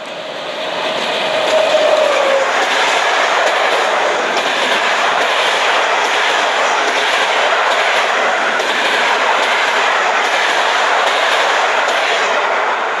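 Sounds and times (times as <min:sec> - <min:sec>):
wheels clicking over rail joints: 0:00.0 - 0:12.5
train rolling past: 0:00.0 - 0:13.0.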